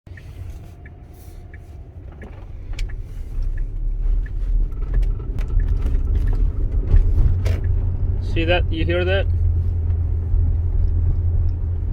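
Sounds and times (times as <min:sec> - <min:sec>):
sharp clicks from steering: 0:00.1 - 0:07.9
low rumble: 0:00.2 - 0:11.9.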